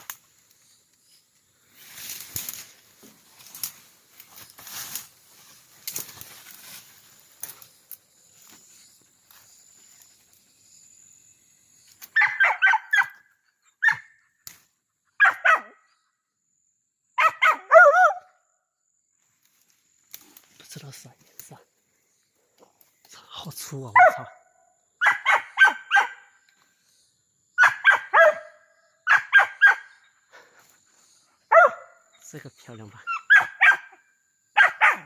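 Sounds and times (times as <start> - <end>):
rustling: 1.6 - 10.1
whining bark: 12.1 - 14.2, 15.2 - 15.9, 17.2 - 18.4, 24.0 - 24.4, 25.0 - 26.3, 27.6 - 30.1, 31.5 - 32.0, 33.1 - 34.0, 34.6 - 35.0
dog barking: 12.2 - 13.2, 13.8 - 14.2, 15.2 - 15.9, 17.2 - 18.3, 24.0 - 24.4, 25.0 - 26.3, 27.6 - 30.0, 31.5 - 32.0, 33.1 - 34.0, 34.6 - 35.0.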